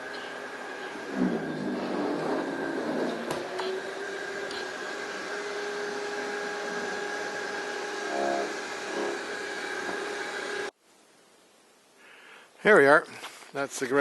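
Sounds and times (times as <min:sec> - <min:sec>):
snowblower running with whine: 0:00.0 - 0:10.7.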